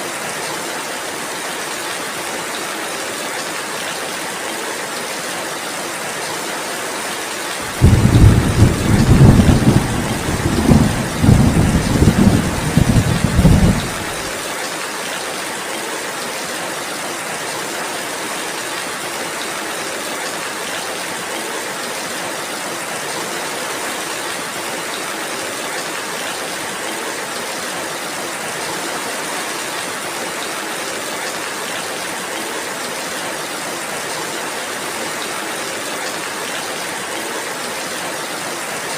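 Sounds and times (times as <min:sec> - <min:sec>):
steady rainfall hissing: 0:00.0 - 0:38.9
low roll of thunder: 0:07.7 - 0:14.4.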